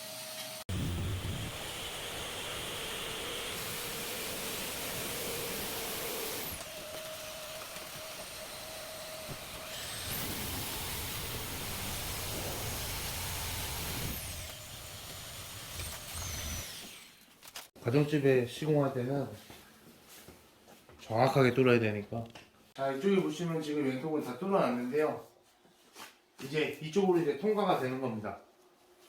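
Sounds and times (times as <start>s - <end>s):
power tool cutting through panel: 0.1s - 17.2s.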